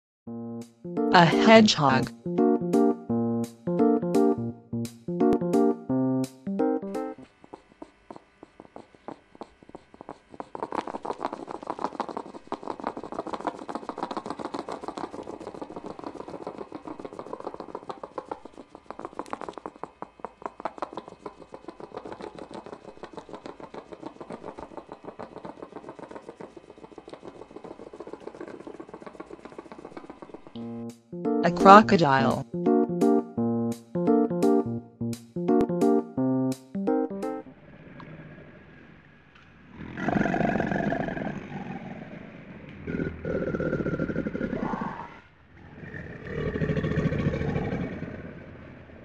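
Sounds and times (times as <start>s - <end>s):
echidna sniffing clicks: 7.2s - 31.0s.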